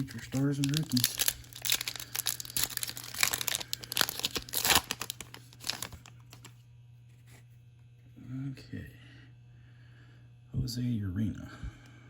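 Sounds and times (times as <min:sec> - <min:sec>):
wrapper crinkling and tearing: 0:00.0 - 0:06.6.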